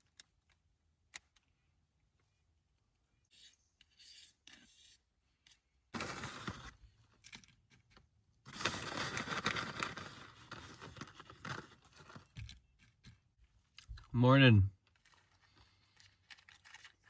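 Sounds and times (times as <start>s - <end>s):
rustling and scraping handling noise: 3.3s - 14.1s, 14.8s - 17.0s.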